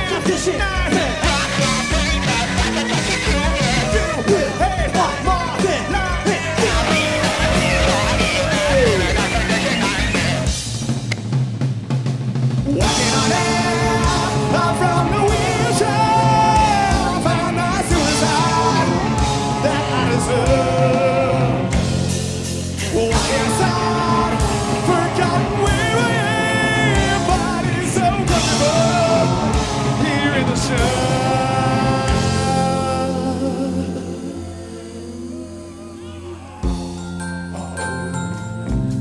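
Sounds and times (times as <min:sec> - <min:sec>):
rock band playing: 0:00.0 - 0:39.0
layered singing voices: 0:12.8 - 0:21.8, 0:22.8 - 0:36.7.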